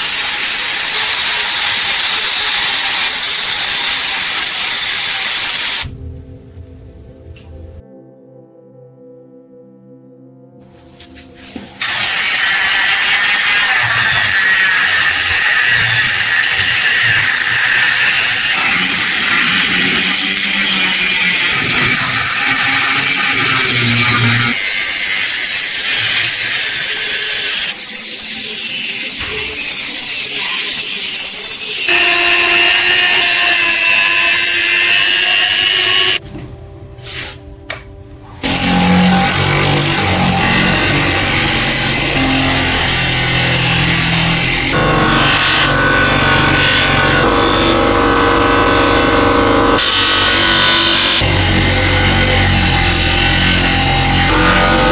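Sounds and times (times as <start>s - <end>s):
tool grinding against metal: 0.0s - 5.9s, 11.6s - 36.2s, 38.4s - 54.9s
soft music: 5.9s - 11.8s, 36.2s - 41.2s.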